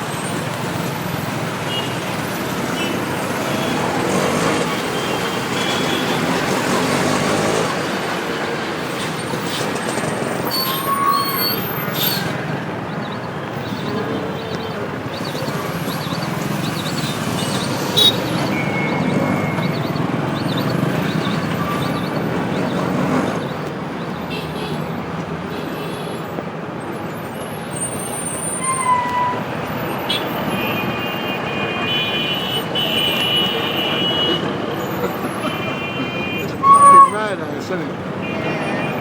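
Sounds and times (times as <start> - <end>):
road traffic noise: 0.0 - 39.0
vehicle horns honking: 1.6 - 7.6, 15.8 - 22.3, 24.2 - 24.9, 28.4 - 37.4, 38.2 - 39.0.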